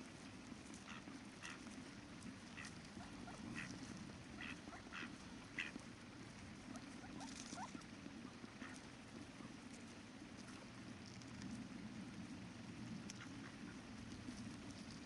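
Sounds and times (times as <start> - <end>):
ducks quacking: 0.8 - 1.7, 2.5 - 5.8, 8.6 - 8.8.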